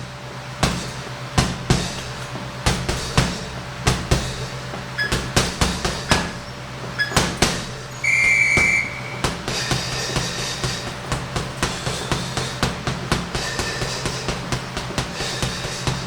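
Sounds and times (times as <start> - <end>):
punches thudding on punching bag: 0.6 - 16.0
high beep: 8.0 - 9.2.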